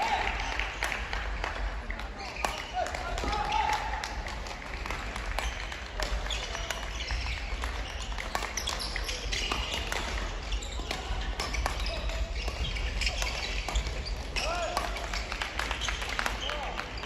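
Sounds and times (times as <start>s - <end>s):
murmur of voices: 0.0s - 17.0s
racket hitting shuttlecock: 2.4s - 16.4s
shoe squeaks on court floor: 5.4s - 17.0s.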